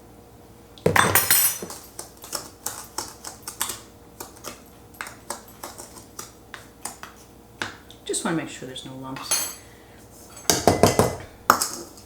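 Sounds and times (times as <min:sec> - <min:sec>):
utensil stirring in a saucepan: 0:01.6 - 0:07.4, 0:10.0 - 0:12.0.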